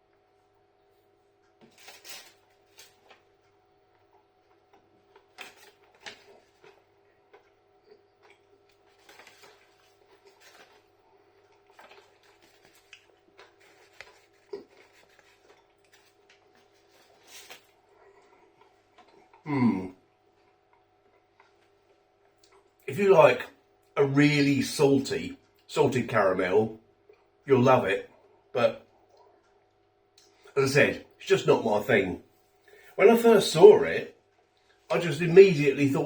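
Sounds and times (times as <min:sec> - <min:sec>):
low steady hum: 0:00.0 - 0:36.0
person chewing: 0:03.9 - 0:22.8.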